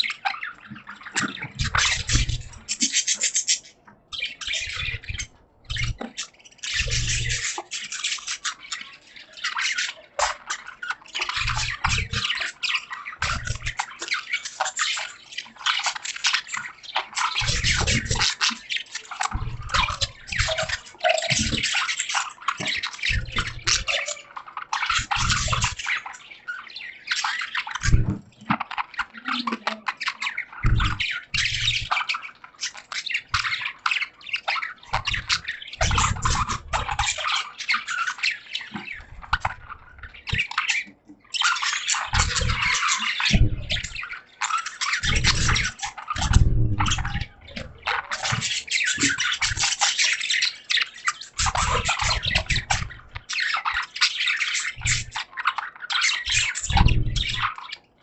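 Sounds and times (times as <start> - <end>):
budgerigars chattering and chirping: 0.0 - 58.0
dull low thumps: 46.2 - 47.0.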